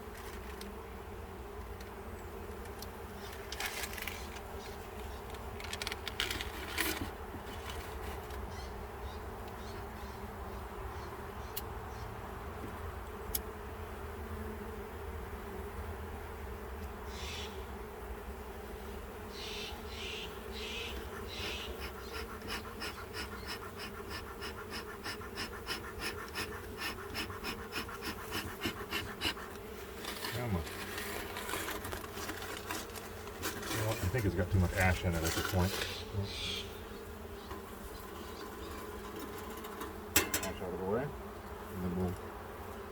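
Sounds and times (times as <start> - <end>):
honeybees buzzing: 0.0 - 42.9
smoker bellows puffing: 21.0 - 36.5.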